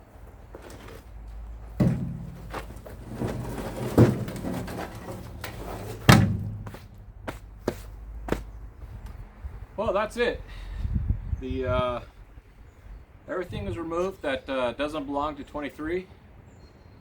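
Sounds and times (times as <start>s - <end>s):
heavy parts thudding: 0.7s - 8.5s.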